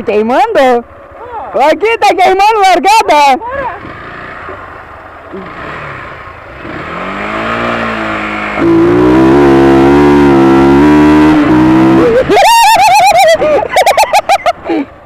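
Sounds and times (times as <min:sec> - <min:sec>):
motorcycle engine accelerating: 0:03.4 - 0:14.3.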